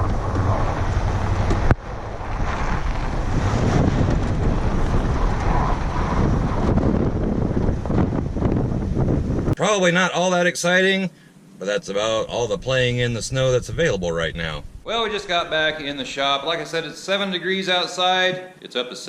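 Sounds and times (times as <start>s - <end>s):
truck engine driving: 0.0s - 9.6s, 12.0s - 16.8s
wind buffeting microphone: 0.0s - 9.6s, 12.0s - 16.3s.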